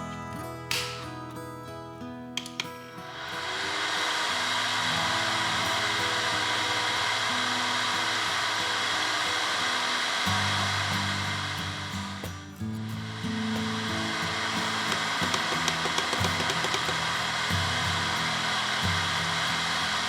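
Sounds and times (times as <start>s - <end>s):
heater switch clicks: 0.7s - 1.2s, 2.4s - 2.9s, 14.6s - 17.2s
heater fan blowing air: 2.4s - 20.0s.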